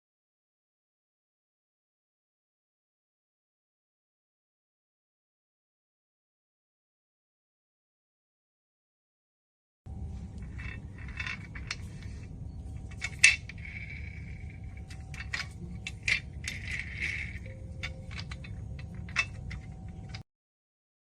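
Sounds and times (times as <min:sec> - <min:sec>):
steady low hum: 0:09.9 - 0:20.2
metal parts clinking: 0:10.1 - 0:20.2.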